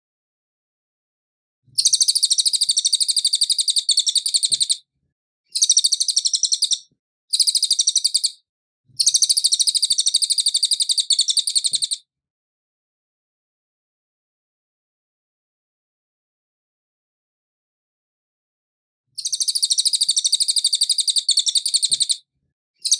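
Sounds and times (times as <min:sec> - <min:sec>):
songbird rapid high chirps: 0:01.8 - 0:04.8, 0:05.5 - 0:08.4, 0:09.0 - 0:12.0, 0:19.2 - 0:22.2.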